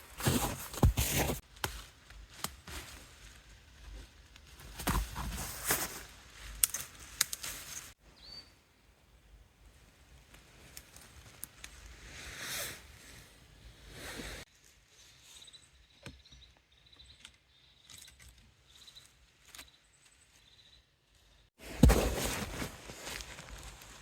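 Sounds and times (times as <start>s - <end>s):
faint rustling and crunching: 0.0s - 8.0s, 17.8s - 24.0s.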